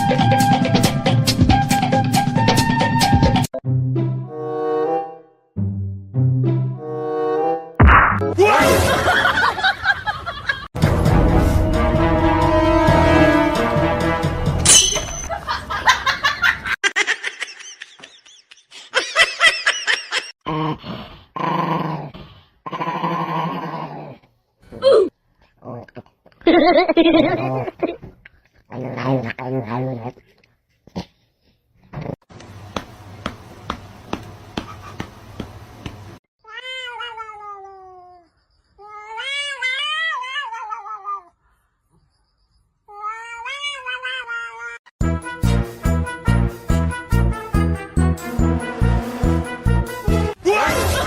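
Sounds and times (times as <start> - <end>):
dog growling: 20.5 - 24.3
cat meowing: 36.5 - 38.2, 38.8 - 41.3, 42.9 - 44.8
dog crying: 38.8 - 41.3.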